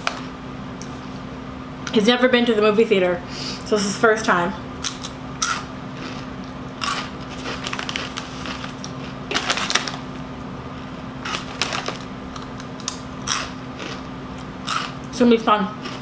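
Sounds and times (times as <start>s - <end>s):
faint steady hum: 0.0s - 16.0s
crunching tortilla chips: 4.8s - 10.2s, 11.2s - 15.0s.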